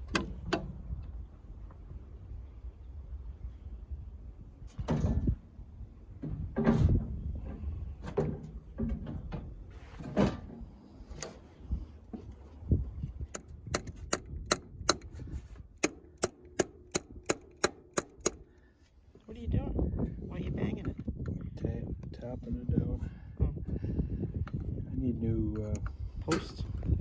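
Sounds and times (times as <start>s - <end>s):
metal tapping on metal: 13.3s - 15.2s, 15.8s - 18.4s.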